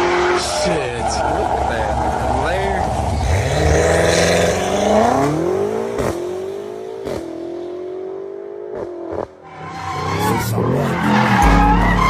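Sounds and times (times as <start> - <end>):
sports car engine accelerating: 1.2 - 9.4.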